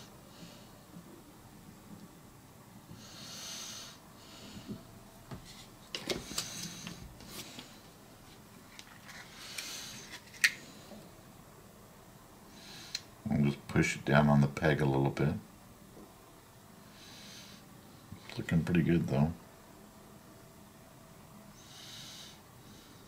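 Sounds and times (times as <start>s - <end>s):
faint nose breathing: 2.9s - 4.9s, 12.5s - 13.1s, 16.8s - 17.7s, 21.6s - 23.0s.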